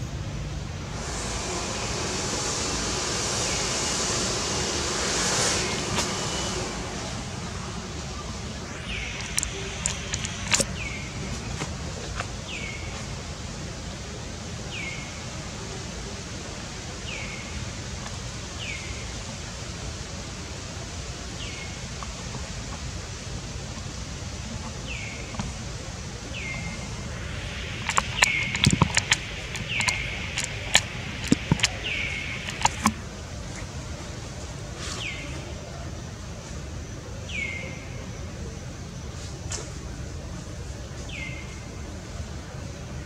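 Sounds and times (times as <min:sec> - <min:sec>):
low background hum: 0:00.0 - 0:43.0
bird calling: 0:05.4 - 0:11.4, 0:26.4 - 0:33.0
sharp clicks and taps: 0:09.2 - 0:10.7, 0:27.8 - 0:33.0.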